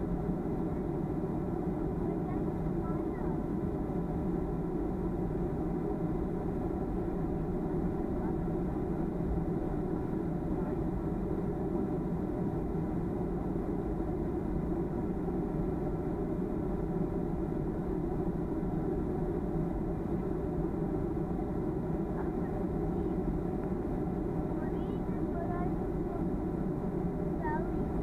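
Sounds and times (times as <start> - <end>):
airplane cabin drone: 0.0 - 28.0
faint steady tones: 0.0 - 28.0.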